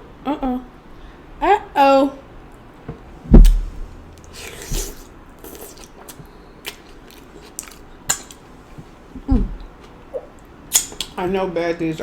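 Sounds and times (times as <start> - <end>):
loud low thump: 3.3 - 4.1
wet slurp: 4.2 - 6.0
lip smacks: 10.1 - 11.2.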